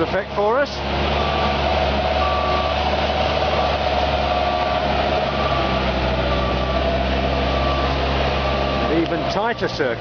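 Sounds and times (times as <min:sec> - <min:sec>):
forklift diesel engine whining: 0:00.0 - 0:10.0
warning alarm beeps: 0:01.2 - 0:09.0.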